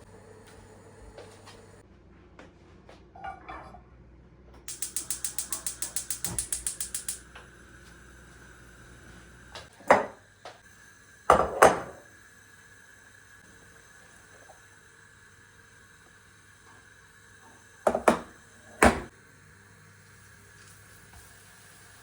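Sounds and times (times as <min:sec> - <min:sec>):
rapid ratcheting clicks: 0:04.7 - 0:07.3.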